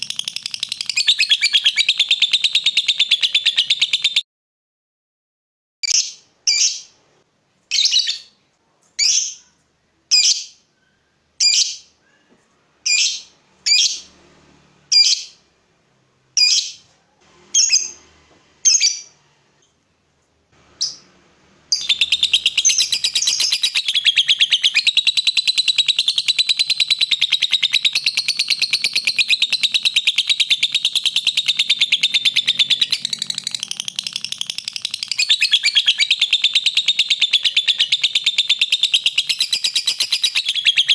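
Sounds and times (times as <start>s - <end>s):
lovebird sharp chirps: 0.0s - 4.2s, 5.8s - 7.0s, 7.7s - 8.4s, 9.0s - 10.7s, 11.4s - 12.0s, 12.8s - 14.1s, 14.9s - 15.4s, 16.4s - 16.8s, 17.5s - 18.0s, 18.6s - 19.7s, 20.8s - 21.1s, 21.7s - 40.9s
lovebird rapid chattering trill: 21.7s - 40.7s.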